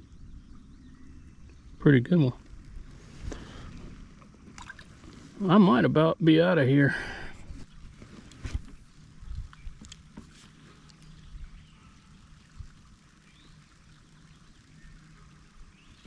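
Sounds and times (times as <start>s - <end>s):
low hum: 0.0s - 6.2s, 6.8s - 16.0s
water trickling: 0.4s - 5.9s, 8.7s - 16.0s.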